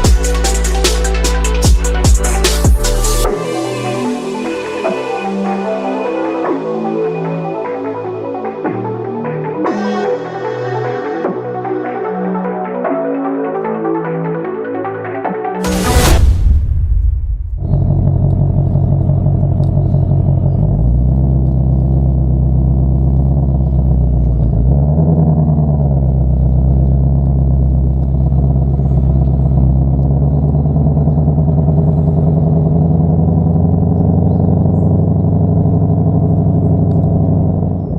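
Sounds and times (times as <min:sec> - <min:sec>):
car engine idling: 0:00.0 - 0:05.4, 0:17.2 - 0:37.9
engine revving: 0:00.0 - 0:05.4, 0:15.6 - 0:37.9.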